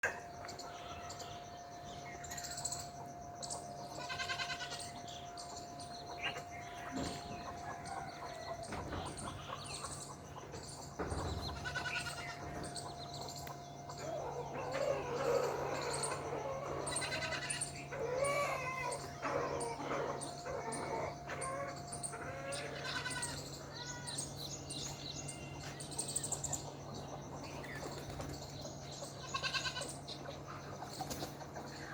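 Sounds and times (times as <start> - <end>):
birds chirping: 0.0 - 31.9
goats bleating: 11.5 - 12.5, 16.9 - 20.2, 22.2 - 24.2, 29.2 - 30.0.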